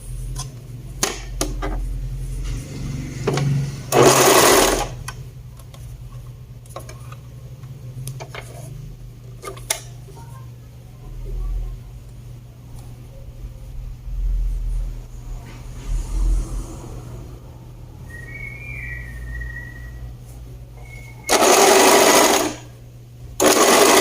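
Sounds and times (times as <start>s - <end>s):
sewing machine stitching: 3.3s - 5.0s, 21.3s - 22.7s, 23.4s - 24.0s.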